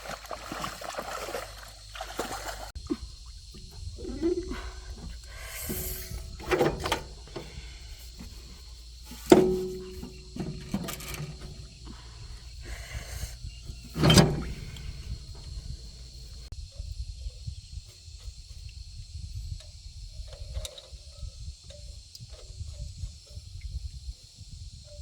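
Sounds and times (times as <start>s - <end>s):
high insect hum: 0.0s - 25.0s
knocks and clatter: 5.0s - 16.5s.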